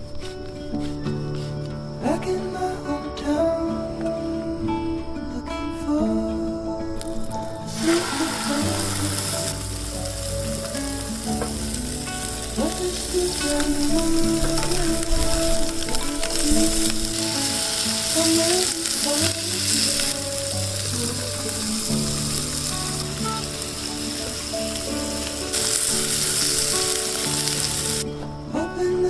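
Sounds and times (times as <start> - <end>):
soft background music: 0.0 - 29.0
food sizzling in a pan: 7.6 - 28.1.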